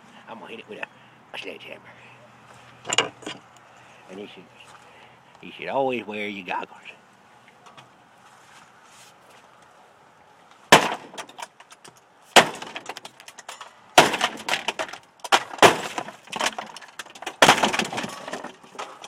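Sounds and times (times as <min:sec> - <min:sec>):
breaking parts crunching and clattering: 0:10.7 - 0:19.0.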